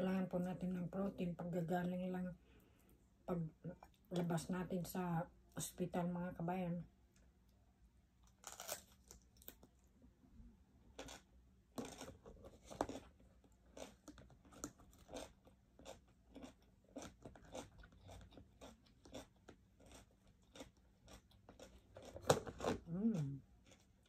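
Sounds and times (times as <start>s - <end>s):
chewing with soft crunches: 10.9s - 24.0s.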